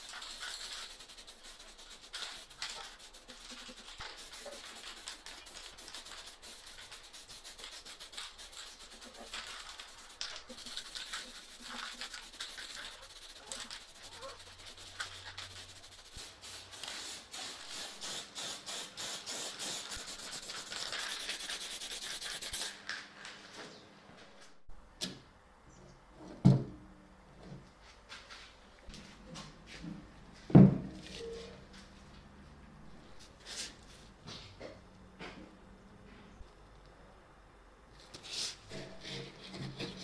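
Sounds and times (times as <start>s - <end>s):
hand rubbing with sandpaper: 0.0s - 22.8s.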